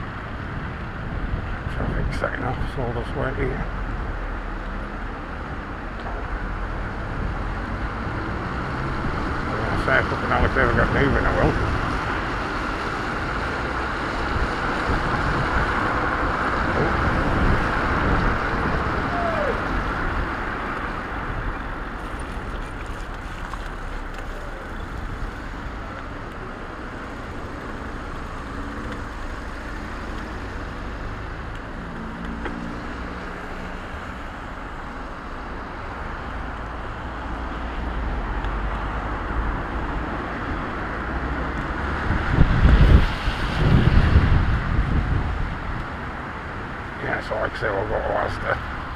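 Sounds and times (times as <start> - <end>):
traffic on a wet road: 0.0 - 48.9
wind on microphone: 6.2 - 26.2, 39.4 - 46.9.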